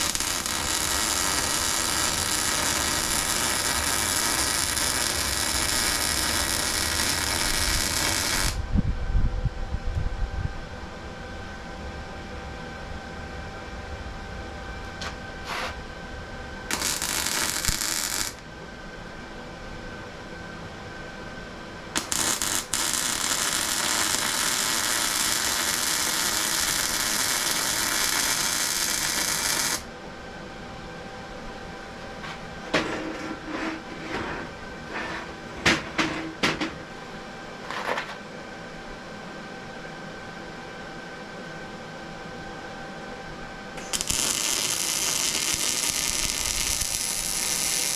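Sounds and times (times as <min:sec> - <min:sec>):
plasma cutter hissing: 0:00.0 - 0:08.6, 0:16.7 - 0:18.4, 0:22.0 - 0:29.8, 0:43.8 - 0:47.9.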